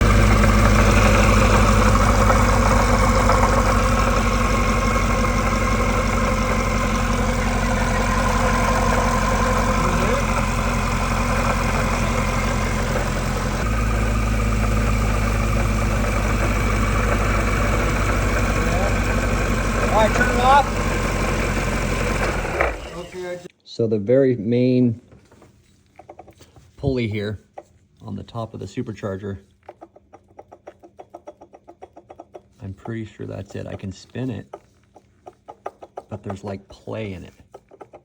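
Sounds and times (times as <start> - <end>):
car engine idling: 0.0 - 23.5.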